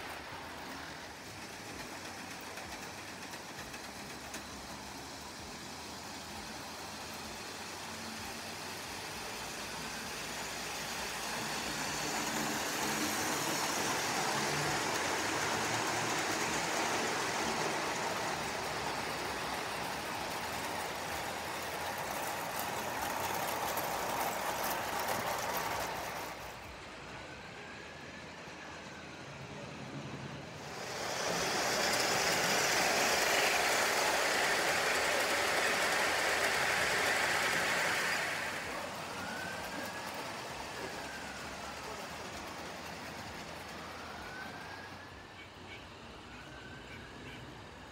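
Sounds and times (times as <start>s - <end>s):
model train wheels rattling: 0.0s - 27.1s, 30.5s - 45.2s.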